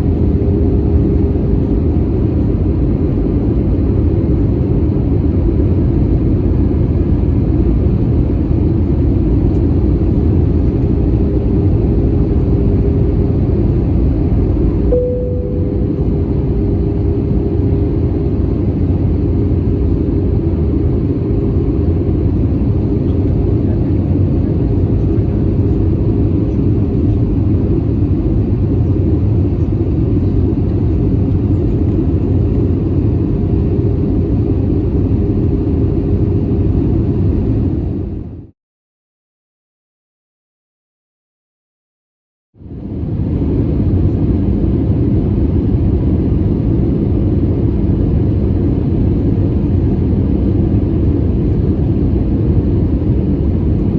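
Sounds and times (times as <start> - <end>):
airliner cabin engine rumble: 0.0 - 38.5, 42.6 - 53.9
steady hum: 10.1 - 22.1
short tone: 14.9 - 17.0.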